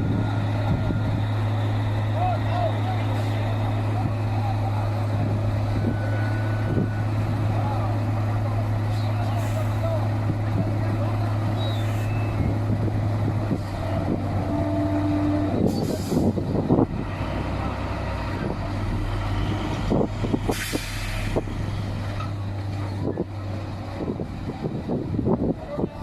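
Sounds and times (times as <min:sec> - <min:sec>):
heavy truck engine running: 0:00.0 - 0:26.0
air hissing: 0:20.5 - 0:21.4.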